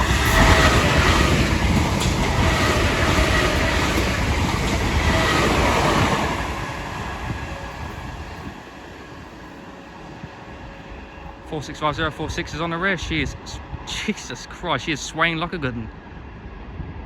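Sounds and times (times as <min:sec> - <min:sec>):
wheels clickety-clack on rails: 0:00.0 - 0:10.2
train passing at speed: 0:00.0 - 0:17.0.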